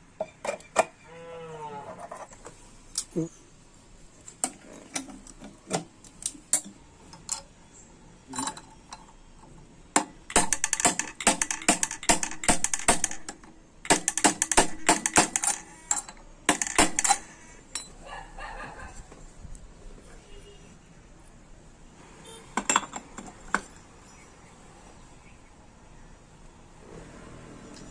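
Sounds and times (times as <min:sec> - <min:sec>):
metal parts clicking and rattling: 0:08.3 - 0:17.9.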